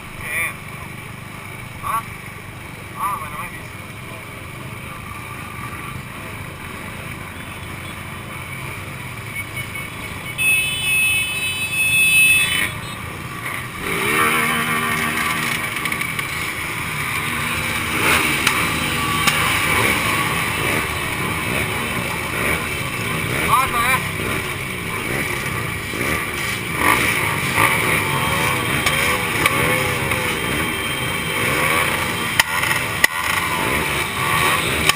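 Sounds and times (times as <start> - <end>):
two-stroke motorcycle engines running: 0.0 - 34.9
engine revving in rising sweeps: 13.8 - 23.6.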